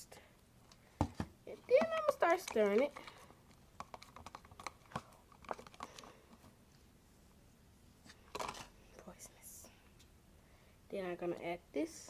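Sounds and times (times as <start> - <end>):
utensil clicking in a container: 1.8 - 3.2.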